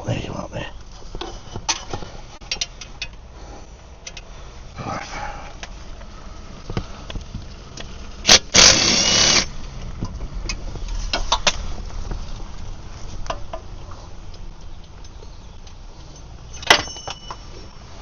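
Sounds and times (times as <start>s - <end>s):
impact wrench bursts: 8.2s - 9.5s
light metallic clinks: 13.3s - 17.8s.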